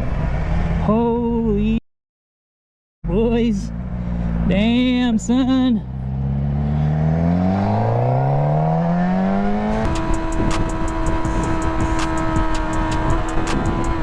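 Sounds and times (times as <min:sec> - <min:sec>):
motorcycle engine accelerating hard: 0:05.8 - 0:14.0
music with held note: 0:09.7 - 0:14.0
steady clicking beat: 0:09.7 - 0:14.0.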